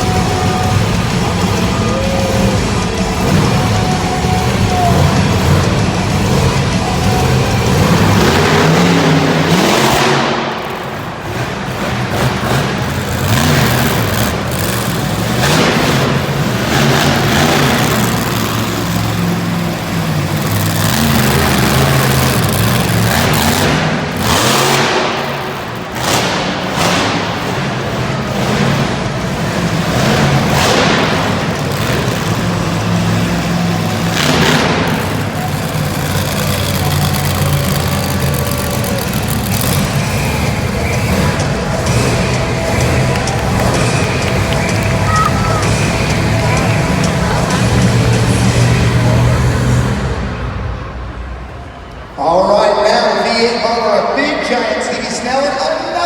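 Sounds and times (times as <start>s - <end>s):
truck engine revving hard: 0.0s - 56.0s.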